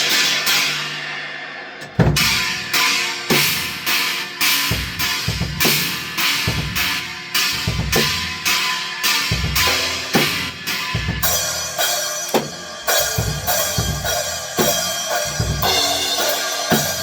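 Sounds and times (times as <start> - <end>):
china cymbal crashes: 0.0 - 17.0
kick drum thumps: 1.8 - 2.5.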